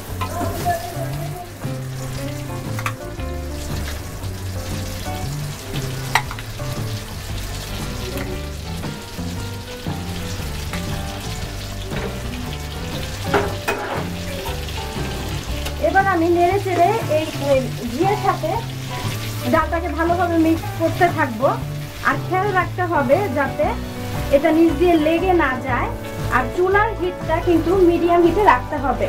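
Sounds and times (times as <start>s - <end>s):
paste sizzling in hot oil: 0.0s - 29.0s
utensil clinking against pan: 13.3s - 14.6s.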